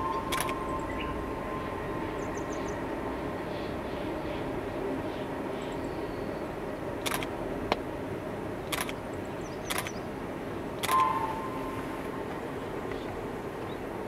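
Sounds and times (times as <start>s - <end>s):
steady high tone: 0.0s - 2.9s, 10.8s - 12.0s
trolley train humming: 0.0s - 14.0s
sharp clicks: 0.3s - 0.6s, 7.0s - 7.3s, 8.7s - 9.0s, 9.7s - 10.0s, 10.8s - 11.1s.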